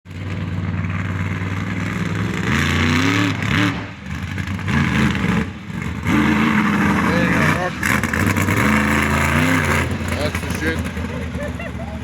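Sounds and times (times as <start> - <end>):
engine running and revving: 0.0 - 12.0.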